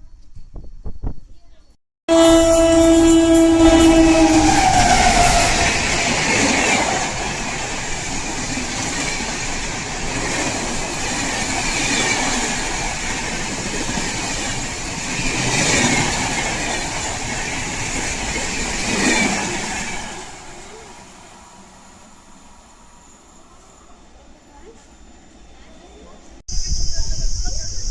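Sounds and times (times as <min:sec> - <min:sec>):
train horn: 0:02.1 - 0:06.8
train wheels rushing on rails: 0:02.1 - 0:26.4.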